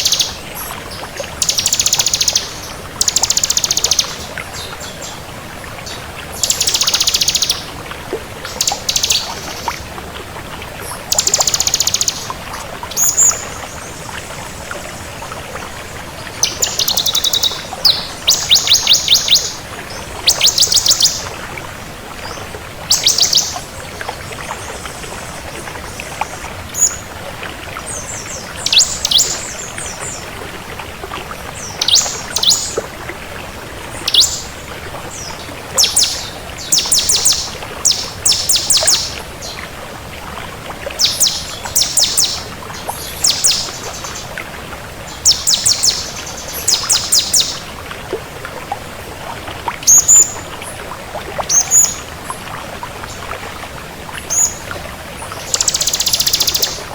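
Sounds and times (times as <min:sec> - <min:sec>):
bird chattering song: 0:00.0 - 0:00.4, 0:01.4 - 0:04.3, 0:06.4 - 0:07.7, 0:08.5 - 0:09.8, 0:11.1 - 0:12.3, 0:16.4 - 0:19.6, 0:20.2 - 0:21.3, 0:22.9 - 0:23.6, 0:28.6 - 0:29.6, 0:31.6 - 0:32.8, 0:34.1 - 0:34.5, 0:35.8 - 0:39.2, 0:41.0 - 0:44.2, 0:45.2 - 0:47.6, 0:55.4 - 0:56.9.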